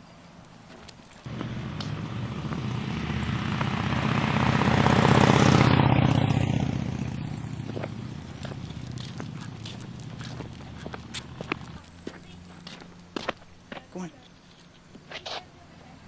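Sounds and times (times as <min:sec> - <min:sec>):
engine passing by: 0:01.2 - 0:13.2.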